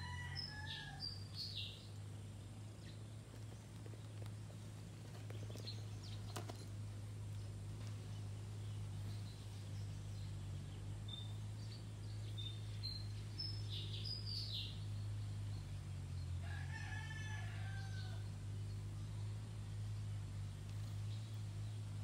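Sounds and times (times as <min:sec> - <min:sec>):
birds calling: 0:00.0 - 0:22.0
steady low hum: 0:00.0 - 0:22.0.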